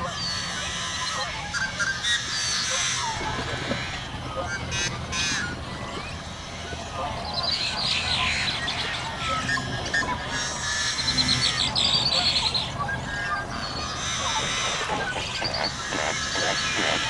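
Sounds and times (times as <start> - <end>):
birds chirping in trills: 0.0 - 17.0.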